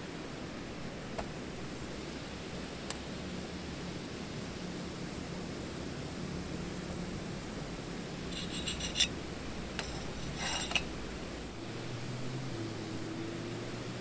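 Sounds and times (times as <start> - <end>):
rasping scrapes: 8.3 - 9.2, 9.8 - 10.9.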